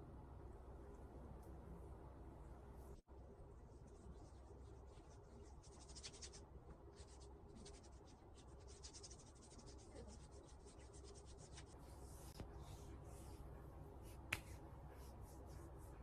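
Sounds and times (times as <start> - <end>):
pencil scratching on paper: 7.0 - 16.0.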